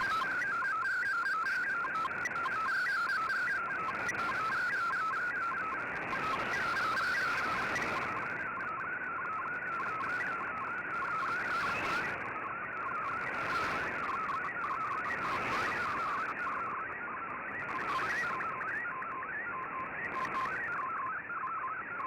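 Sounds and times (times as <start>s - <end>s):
warbling data transmission tones: 0.0s - 16.7s.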